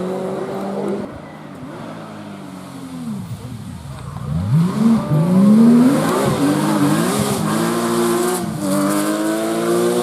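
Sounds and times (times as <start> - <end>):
rally car engine accelerating: 4.0 - 10.0.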